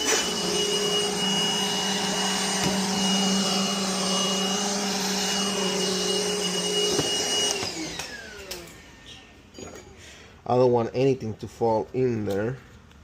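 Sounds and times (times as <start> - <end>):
electric motor whining: 0.0 - 9.2.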